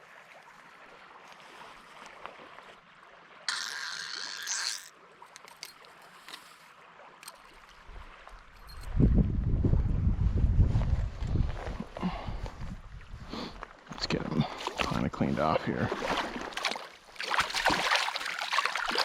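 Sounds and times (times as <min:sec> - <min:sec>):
faint running stream: 0:00.0 - 0:19.0
sudden rush of water: 0:15.8 - 0:19.0.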